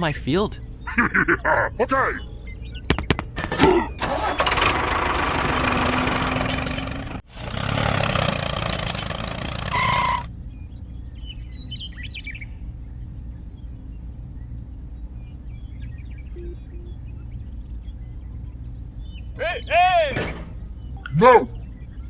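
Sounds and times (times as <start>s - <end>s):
low steady hum: 0.0s - 4.1s, 10.3s - 22.0s
birds chirping: 0.0s - 22.0s
tractor engine running: 0.0s - 22.0s
short beep: 16.4s - 16.9s.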